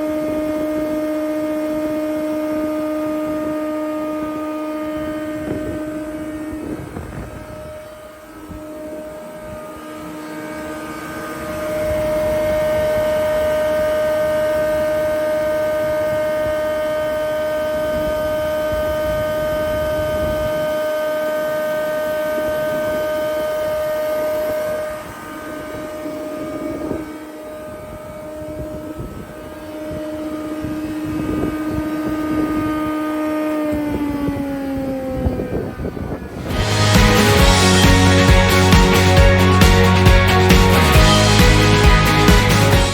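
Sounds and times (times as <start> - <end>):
planer whining: 36.2 - 42.9.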